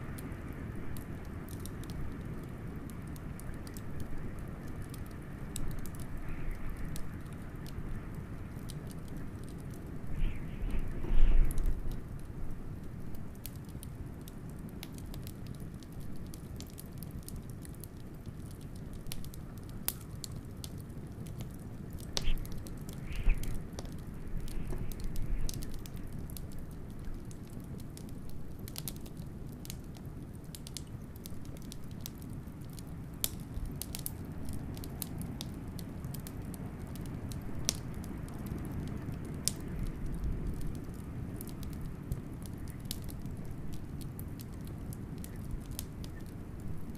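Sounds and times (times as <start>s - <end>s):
wood fire crackling: 0.0s - 46.9s
blizzard wind rushing: 10.0s - 11.9s, 22.1s - 26.1s.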